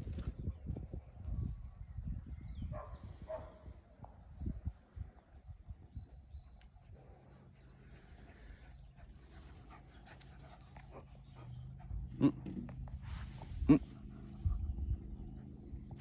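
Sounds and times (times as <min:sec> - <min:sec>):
small bird singing: 0:00.2 - 0:09.6
low rumble: 0:10.5 - 0:16.0.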